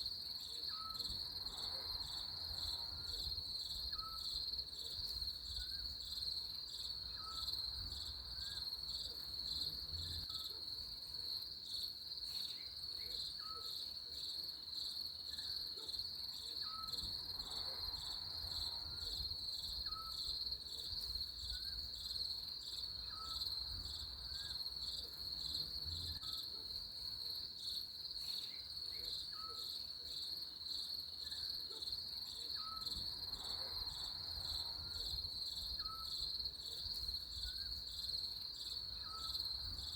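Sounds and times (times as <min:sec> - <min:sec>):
crickets trilling: 0:28.4 - 0:39.9.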